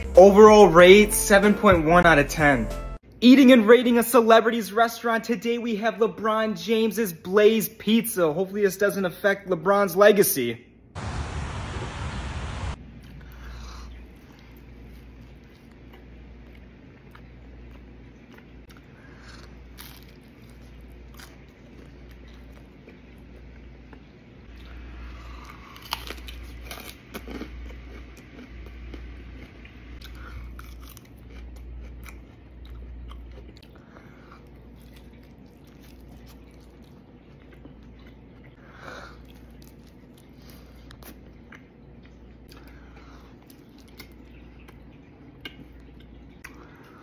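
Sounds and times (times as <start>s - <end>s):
crunching food: 12.9s - 47.0s
wet chewing and mouth clicks: 13.0s - 47.0s.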